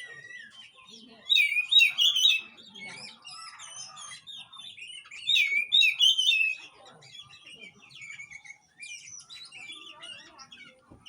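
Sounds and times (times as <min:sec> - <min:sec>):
bird whistles and chirps: 0:00.0 - 0:06.6.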